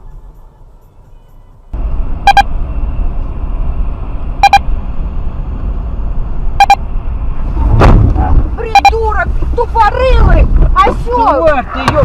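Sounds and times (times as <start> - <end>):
car road and engine noise: 0.0 - 12.0
electronic double beep: 2.2 - 2.5, 4.4 - 4.7, 6.6 - 6.8, 8.7 - 9.0.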